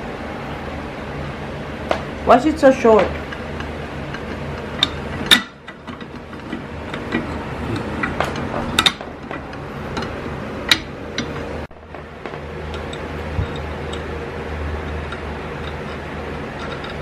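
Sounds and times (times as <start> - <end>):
low room hum: 0.0 - 17.0
tools and parts clicking and knocking: 3.0 - 14.1, 14.8 - 17.0.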